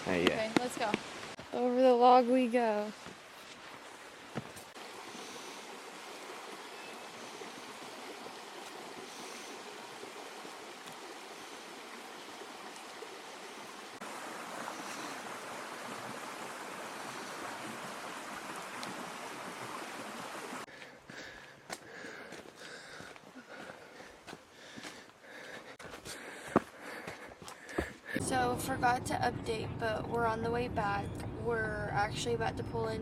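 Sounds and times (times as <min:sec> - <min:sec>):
river water rushing: 0:03.0 - 0:20.7.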